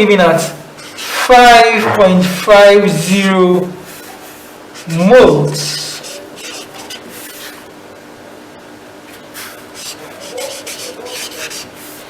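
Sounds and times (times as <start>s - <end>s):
pen scratching paper: 5.7s - 7.6s, 9.4s - 12.0s.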